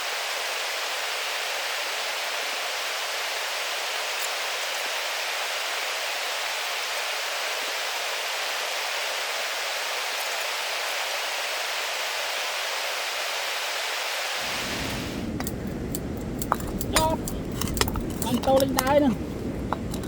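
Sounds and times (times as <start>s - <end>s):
waterfall rushing: 0.0s - 15.4s.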